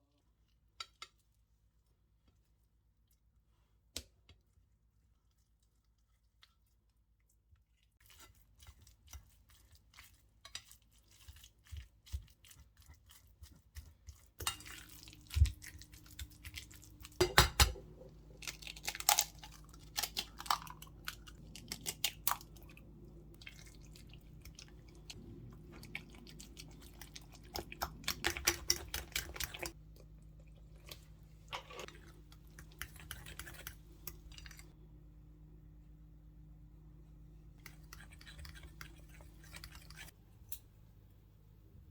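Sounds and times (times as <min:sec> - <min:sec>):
steady low hum: 0:14.4 - 0:41.9.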